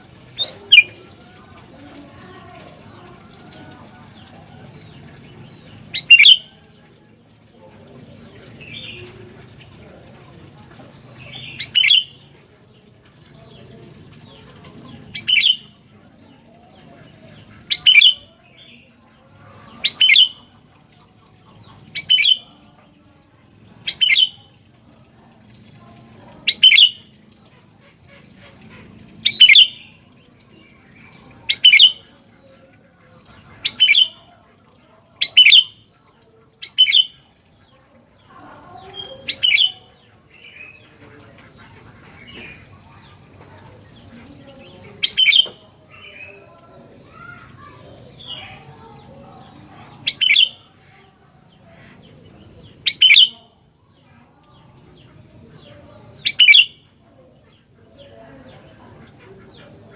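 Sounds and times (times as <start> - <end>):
bird giving sharp calls: 0.3 - 1.2, 5.9 - 6.5, 11.2 - 12.3, 15.0 - 15.8, 17.0 - 18.3, 19.7 - 20.4, 21.8 - 22.5, 23.8 - 24.4, 26.4 - 27.1, 27.9 - 30.0, 31.1 - 32.1, 33.2 - 34.2, 35.2 - 35.8, 36.6 - 37.2, 38.6 - 46.3, 47.0 - 50.9, 51.8 - 53.4, 56.0 - 56.9.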